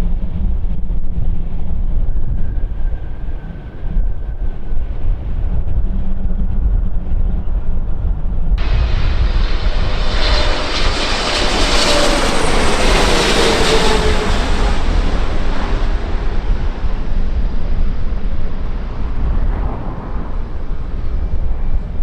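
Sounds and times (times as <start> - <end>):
wind on microphone: 0.0 - 22.0
airliner flying past: 8.6 - 22.0.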